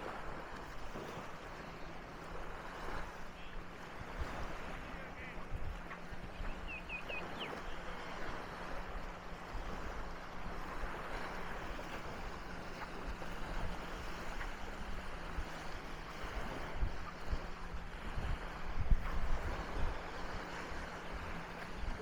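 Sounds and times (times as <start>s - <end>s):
waves washing onto beach: 0.0s - 22.0s
wind gusting on microphone: 13.0s - 22.0s.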